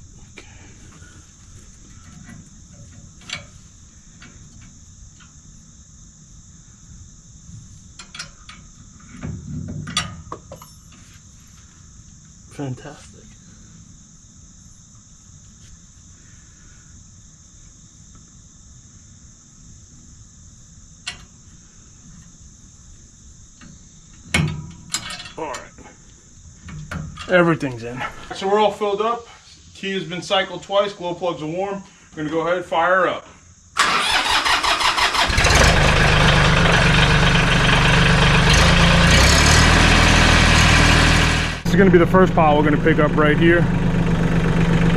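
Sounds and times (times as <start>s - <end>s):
crickets and insects chirping: 0.0s - 44.9s
diesel tractor engine idling: 33.8s - 44.9s.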